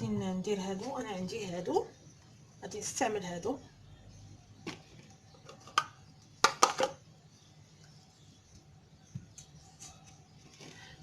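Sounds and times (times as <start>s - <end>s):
plastic moulds clicking and knocking: 4.6s - 7.0s.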